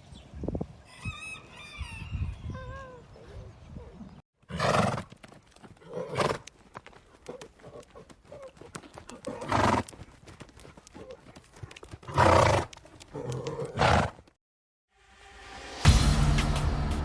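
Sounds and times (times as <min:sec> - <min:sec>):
horse vocal sounds: 0:04.5 - 0:05.1, 0:05.8 - 0:06.5, 0:07.2 - 0:10.0, 0:10.9 - 0:14.3
horse hooves clip-clopping: 0:04.7 - 0:14.4.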